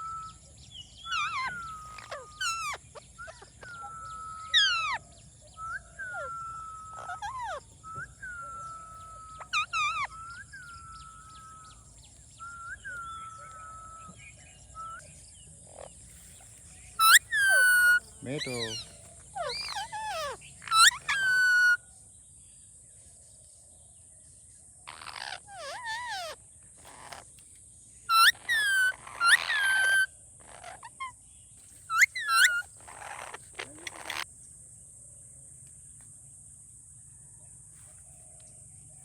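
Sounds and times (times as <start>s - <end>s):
parrot calling: 1.0s - 5.0s, 5.6s - 11.8s, 17.0s - 21.8s, 24.9s - 27.2s, 28.1s - 31.1s, 31.9s - 34.2s.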